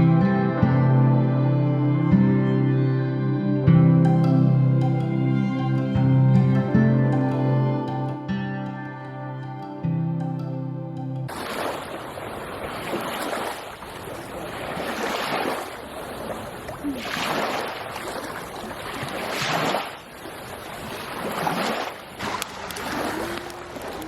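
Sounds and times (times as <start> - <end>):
small waves washing onto beach: 11.3 - 24.0
wind on microphone: 11.3 - 24.0.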